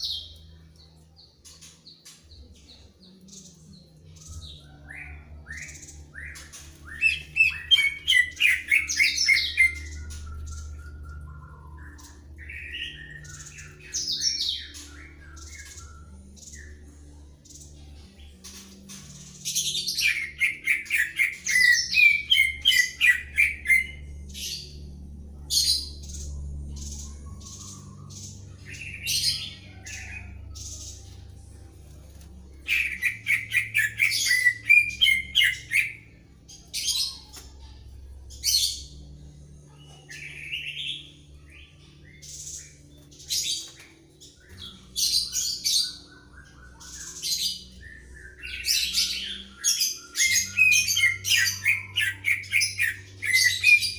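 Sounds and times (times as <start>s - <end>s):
faint low hum: 0.0s - 53.9s
birds singing varied whistles: 32.7s - 36.1s.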